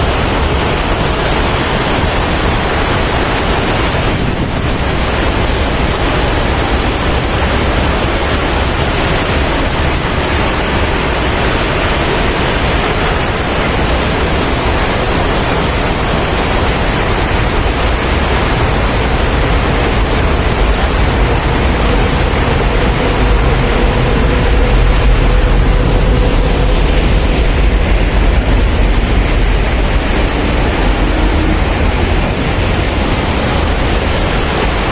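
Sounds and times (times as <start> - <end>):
deep rumble: 0.0 - 34.9
waterfall rushing: 0.0 - 34.9.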